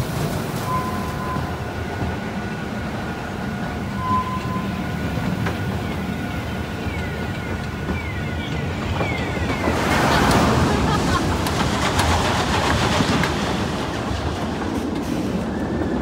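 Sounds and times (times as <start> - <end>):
rail vehicle rumbling on track: 0.0 - 16.0
short falling squeals: 0.6 - 1.6.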